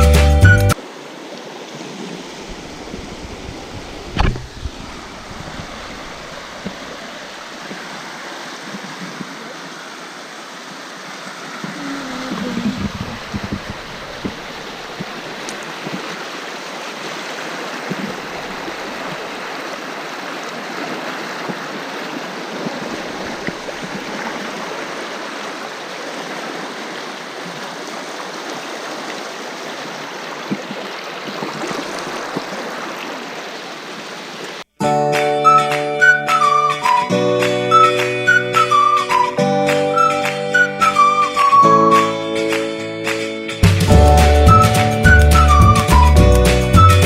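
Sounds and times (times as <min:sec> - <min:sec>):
river water rushing: 0:00.7 - 0:46.2
low knocks: 0:03.8 - 0:06.8.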